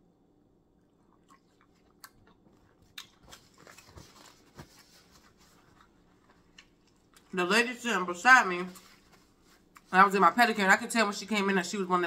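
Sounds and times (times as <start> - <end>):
faint chewing and crunching: 0.7 - 7.4, 8.6 - 10.0.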